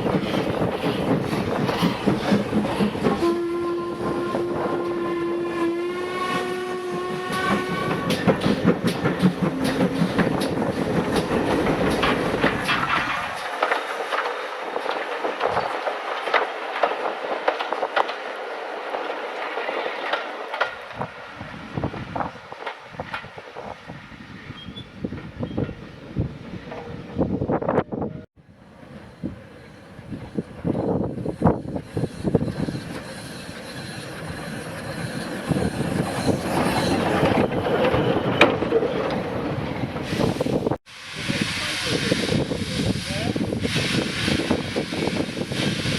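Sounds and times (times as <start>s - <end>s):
train wheels clattering: 0.0s - 4.2s, 6.7s - 23.9s
deep train rumble: 0.0s - 45.9s
train rushing noise: 0.0s - 45.9s.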